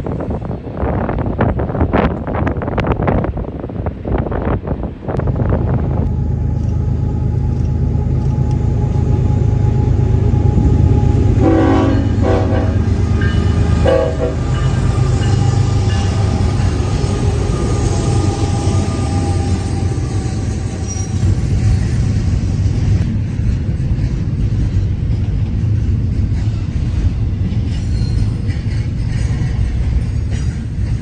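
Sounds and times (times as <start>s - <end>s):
diesel locomotives rumbling: 0.0s - 31.0s
wind noise: 0.0s - 31.0s
train air horn blasts: 5.6s - 20.1s.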